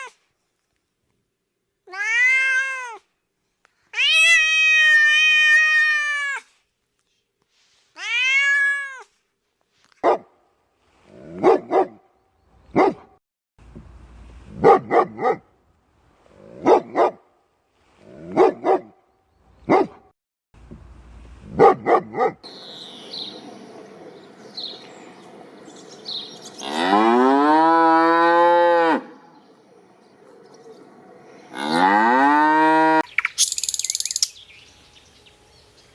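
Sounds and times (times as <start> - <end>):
cat meowing: 1.9 - 3.0, 4.0 - 6.4, 8.0 - 9.0
dog barking: 10.0 - 10.3, 11.2 - 12.0, 12.7 - 13.2, 14.6 - 15.5, 16.6 - 17.3, 18.2 - 19.0, 19.6 - 20.1, 21.5 - 22.5
birds chirping: 22.4 - 32.4, 33.0 - 35.9
cow mooing: 26.5 - 29.5, 31.4 - 33.0.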